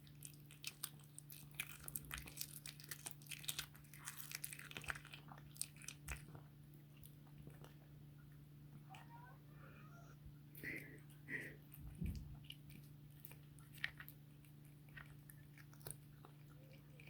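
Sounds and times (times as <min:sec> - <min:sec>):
cat crunching bones: 0:00.0 - 0:08.0, 0:10.6 - 0:17.0
steady low hum: 0:04.9 - 0:17.0.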